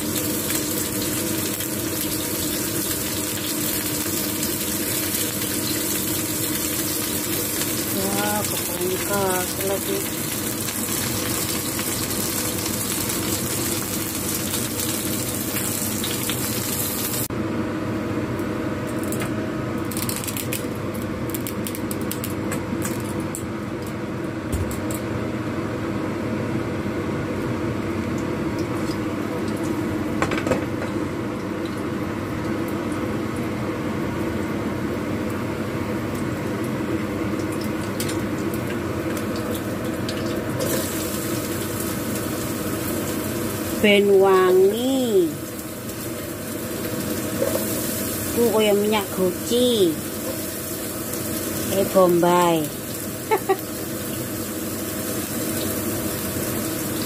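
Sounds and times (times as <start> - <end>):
eggplant sizzling in oil: 0.0 - 17.3, 36.2 - 57.0
oil crackling in pan: 0.0 - 17.3, 19.9 - 23.5, 36.1 - 43.8, 49.1 - 51.9, 52.6 - 57.0.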